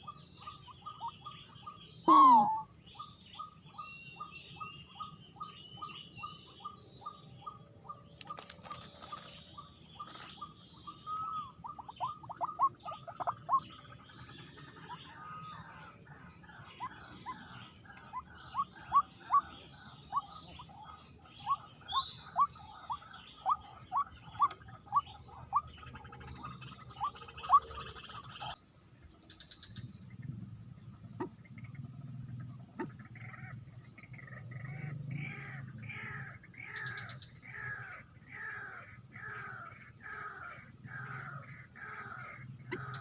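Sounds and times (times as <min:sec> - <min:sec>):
bird sweeping call note: 0:02.1 - 0:02.7.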